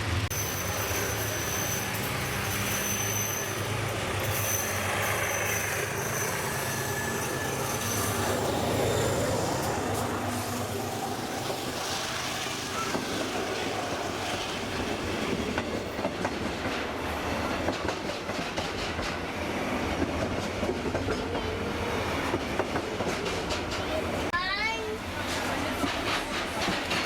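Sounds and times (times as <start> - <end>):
train carriage rumbling on track: 0.0 - 27.0
wheels clicking over rail joints: 12.3 - 21.6, 25.2 - 27.0.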